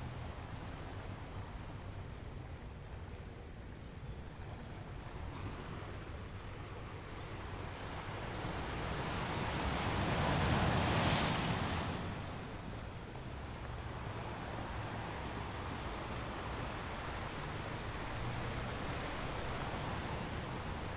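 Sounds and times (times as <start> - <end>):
ocean surf rushing: 8.3 - 20.9.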